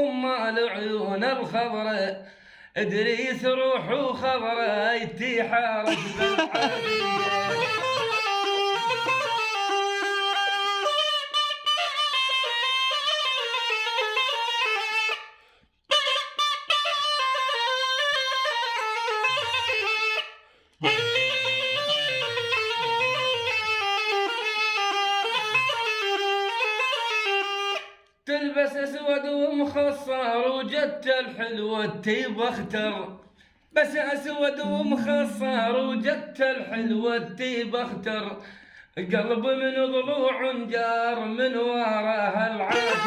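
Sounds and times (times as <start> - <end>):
reed pipe folk melody: 5.9 - 28.1, 42.7 - 43.0.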